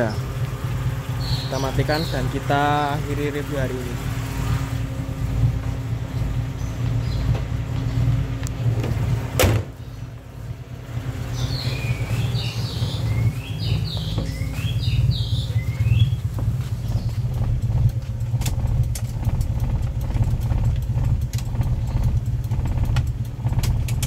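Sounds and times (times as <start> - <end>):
birds chirping: 0.0 - 23.3
car engine idling: 0.0 - 24.0
car bonnet slamming shut: 8.8 - 9.8.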